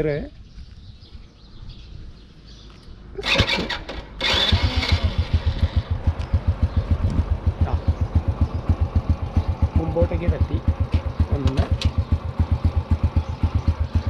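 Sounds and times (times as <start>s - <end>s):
motorcycle engine starting and idling: 3.2s - 14.0s.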